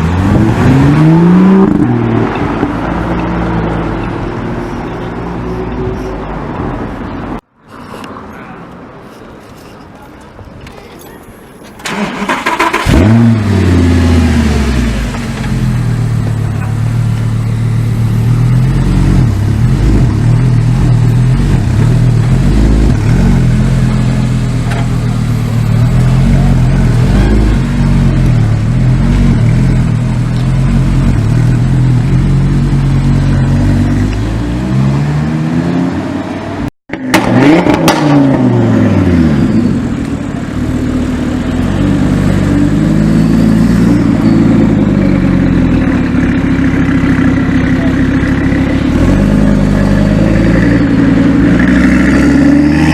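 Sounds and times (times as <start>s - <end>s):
sports car engine revving: 12.6s - 17.2s.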